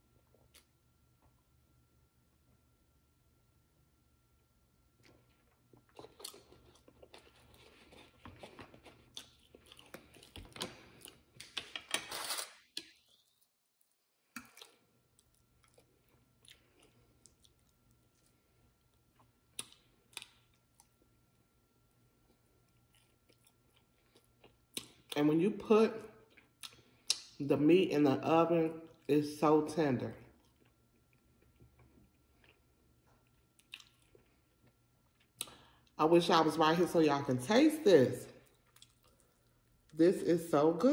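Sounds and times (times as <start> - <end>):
person chewing food: 0.2 - 1.3, 4.9 - 25.2, 26.2 - 27.4, 30.3 - 36.0, 38.4 - 40.0.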